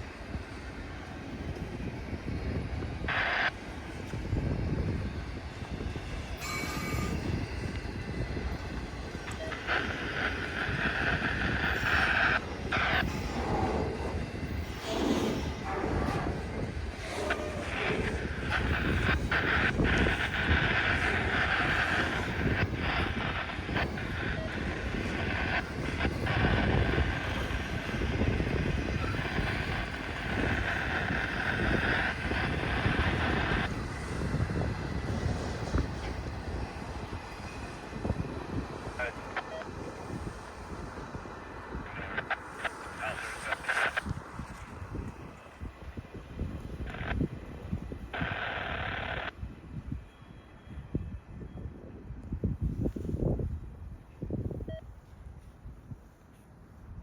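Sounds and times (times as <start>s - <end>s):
train wheels rumbling on rail: 0.0s - 42.9s
high-pitched wheel squeal: 6.4s - 7.4s
ringing hiss: 6.4s - 7.6s.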